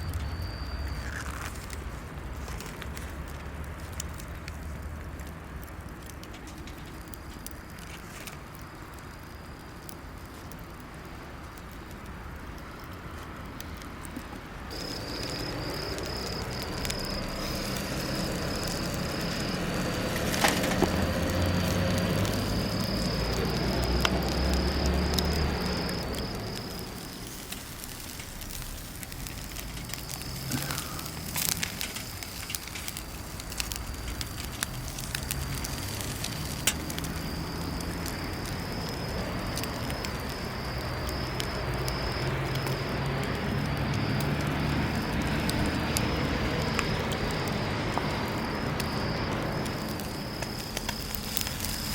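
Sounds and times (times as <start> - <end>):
high insect trill: 0.0 - 3.1, 14.7 - 51.9
campfire crackling and popping: 0.0 - 51.9.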